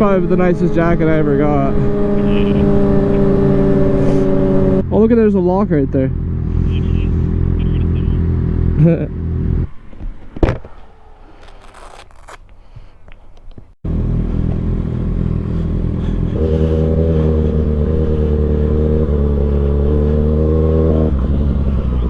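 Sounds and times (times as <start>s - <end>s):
scraping and clicking: 11.3s - 12.4s.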